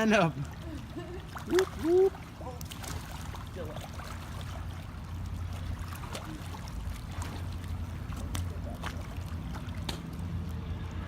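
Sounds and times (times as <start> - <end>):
pool water splashing: 0.0 - 11.0.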